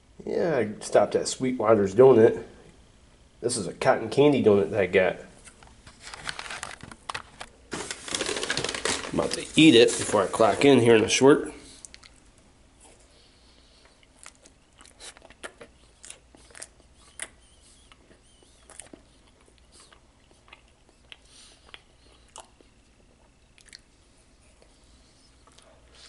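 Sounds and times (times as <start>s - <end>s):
person chewing donut: 11.7s - 26.0s.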